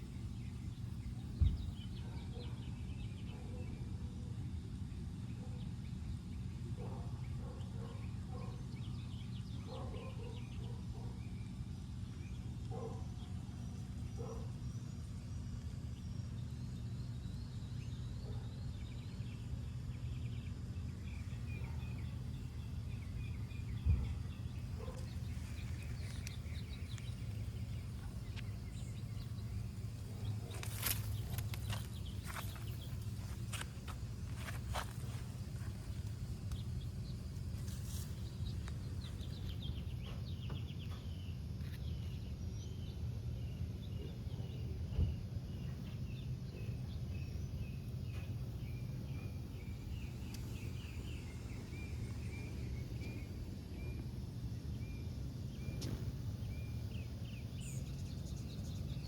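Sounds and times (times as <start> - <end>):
low thump: 1.4 - 1.8
steady low rumble: 20.9 - 41.2
bird calls: 21.1 - 42.2.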